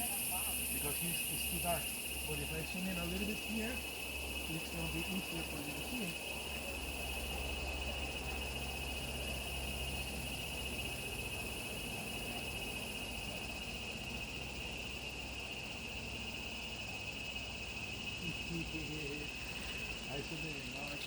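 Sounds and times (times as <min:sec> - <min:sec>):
faint high hiss: 0:00.0 - 0:06.6
insects trilling: 0:00.0 - 0:21.0.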